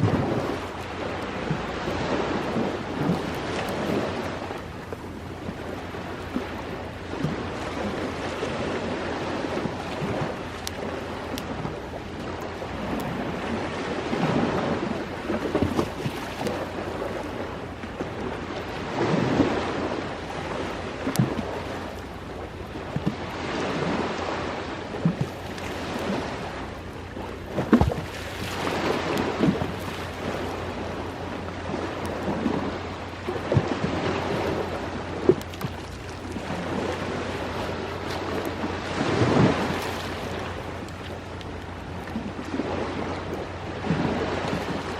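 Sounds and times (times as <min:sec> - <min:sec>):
waves washing in and back: 0:00.0 - 0:44.9.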